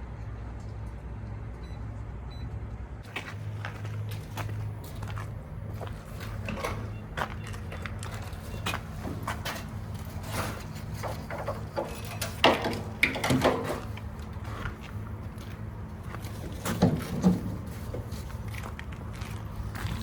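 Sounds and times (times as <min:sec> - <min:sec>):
low engine hum: 0:00.0 - 0:20.0
sharp knocks and clatters: 0:08.6 - 0:14.0, 0:16.3 - 0:18.1.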